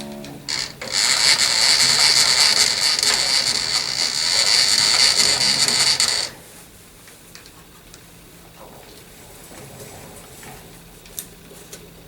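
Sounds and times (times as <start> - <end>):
milling machine cutting metal: 0.5 - 6.4.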